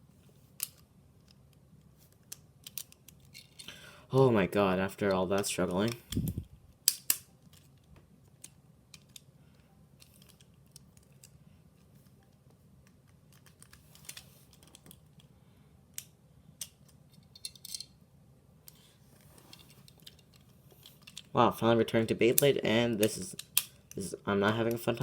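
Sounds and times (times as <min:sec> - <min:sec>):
low steady hum: 0:00.0 - 0:25.0
small plastic parts clicking: 0:02.1 - 0:03.7, 0:05.4 - 0:09.3, 0:10.0 - 0:11.4, 0:12.8 - 0:15.3, 0:19.5 - 0:21.3, 0:22.3 - 0:25.0.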